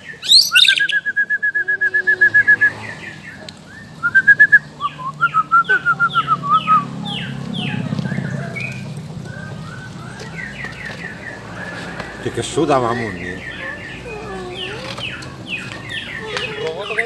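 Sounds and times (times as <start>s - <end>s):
songbird singing whistled notes: 0.0s - 11.8s.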